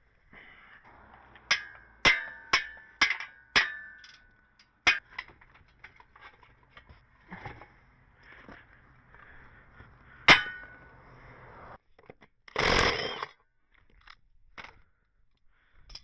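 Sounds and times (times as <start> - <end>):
metal clang: 1.4 - 5.3, 10.3 - 10.8.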